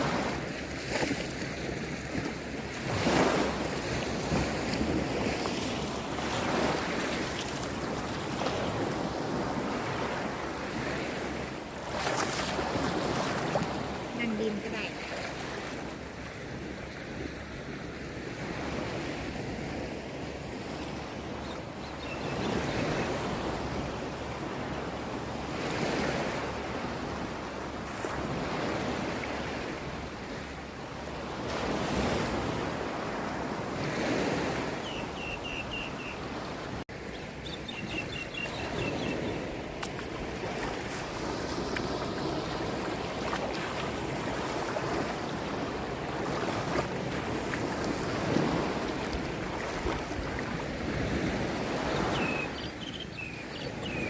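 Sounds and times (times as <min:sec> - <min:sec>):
sea waves washing in: 0:00.0 - 0:21.4, 0:38.3 - 0:52.8.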